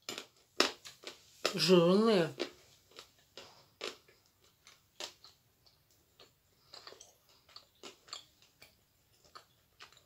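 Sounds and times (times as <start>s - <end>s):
crunchy chewing: 2.4s - 10.0s.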